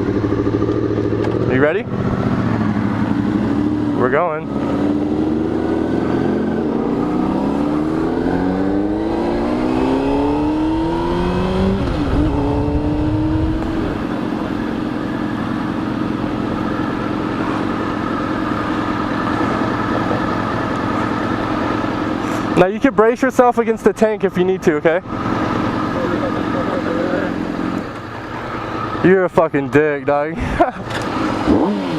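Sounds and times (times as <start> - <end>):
motorcycle engine revving through gears: 0.0 - 22.6, 24.9 - 30.1, 30.7 - 31.9.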